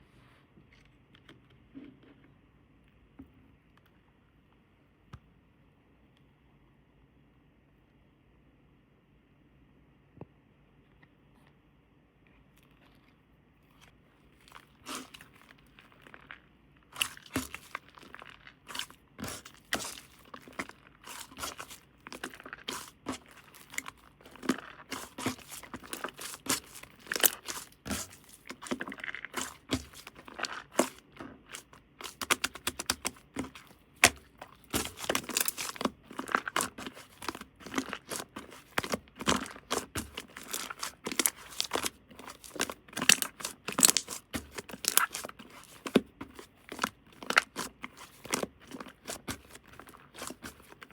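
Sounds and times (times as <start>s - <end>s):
crinkling and tearing: 13.8s - 50.9s.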